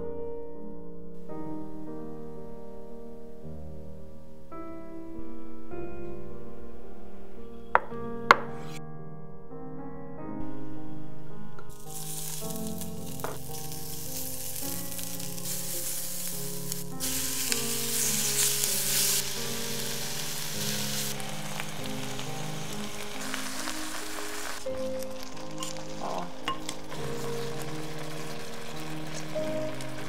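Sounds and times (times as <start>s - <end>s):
soft background music: 0.0s - 30.0s
vegetables sizzling in oil: 11.7s - 30.0s.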